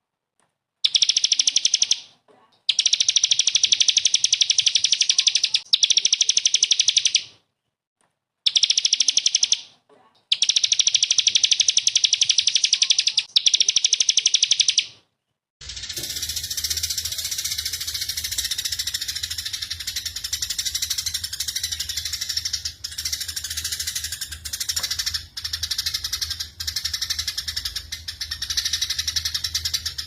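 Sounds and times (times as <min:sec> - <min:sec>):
songbird trilling: 0:15.8 - 0:30.0.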